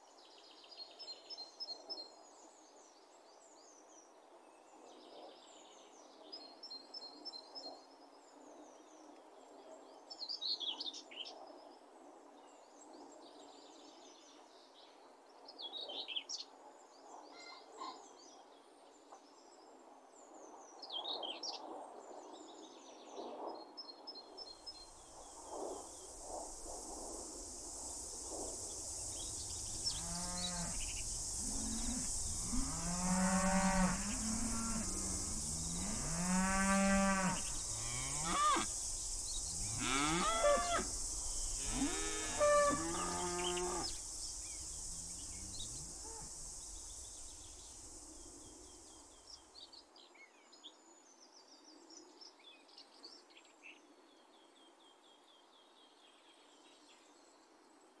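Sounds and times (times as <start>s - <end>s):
wind hiss: 24.4s - 49.8s
small birds chirping: 24.5s - 49.6s
cows mooing: 31.4s - 38.7s, 39.6s - 40.9s, 41.6s - 43.9s.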